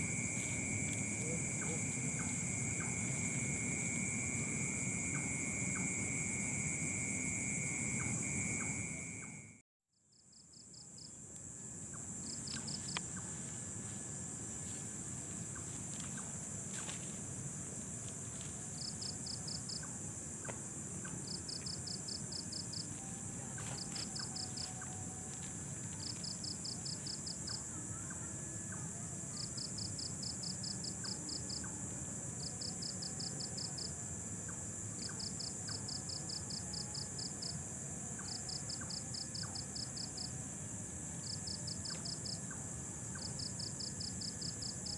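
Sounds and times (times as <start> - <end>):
cricket trilling: 0.0 - 44.9
high-pitched insect drone: 0.0 - 44.9.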